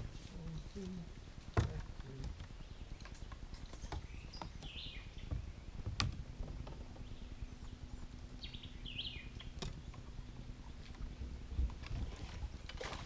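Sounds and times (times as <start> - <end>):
faint low hum: 0.0 - 13.0
outdoor background noise: 0.0 - 13.0.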